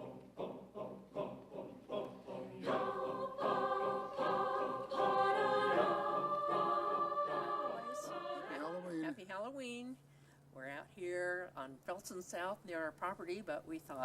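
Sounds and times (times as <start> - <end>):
choir singing held chords: 0.0 - 9.1.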